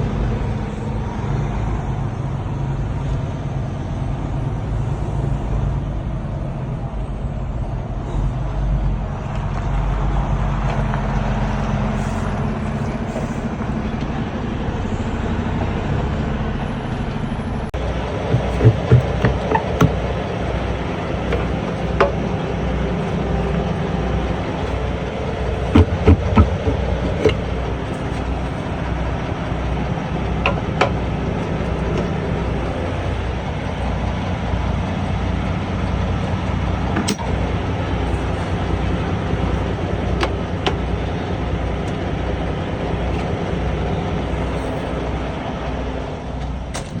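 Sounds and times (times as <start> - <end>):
truck engine running: 0.0 - 47.0
sharp clicks and knocks: 18.0 - 24.9, 25.5 - 28.8.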